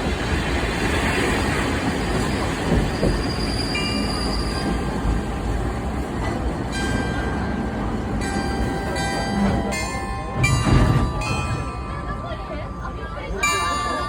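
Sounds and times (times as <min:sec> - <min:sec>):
trolley train wheels rumbling: 0:00.0 - 0:14.0
high wheel squeal: 0:02.2 - 0:04.9.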